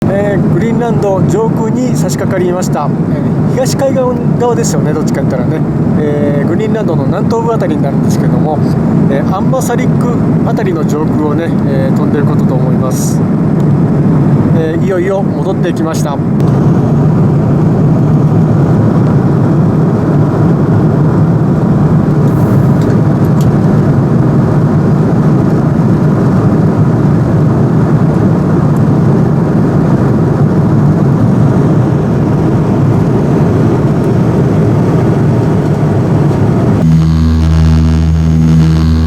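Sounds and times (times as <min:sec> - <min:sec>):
airliner cabin drone: 0:00.0 - 0:39.0.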